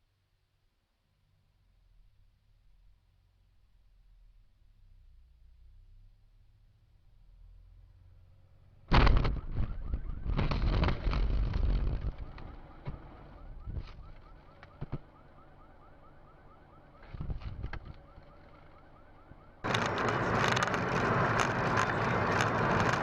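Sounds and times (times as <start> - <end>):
road and wind noise: 4.8 - 23.0
faint car alarm chirping: 9.2 - 23.0.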